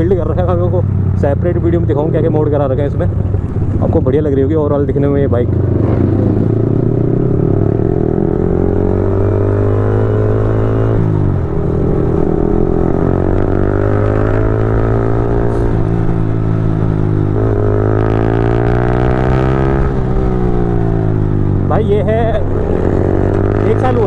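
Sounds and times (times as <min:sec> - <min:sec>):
motorcycle engine shifting gears: 0:05.3 - 0:24.0.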